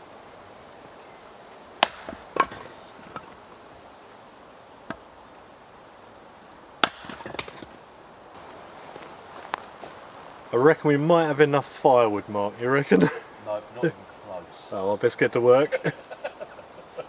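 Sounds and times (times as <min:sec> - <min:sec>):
axe chopping firewood: 0:01.8 - 0:03.4, 0:06.8 - 0:07.8.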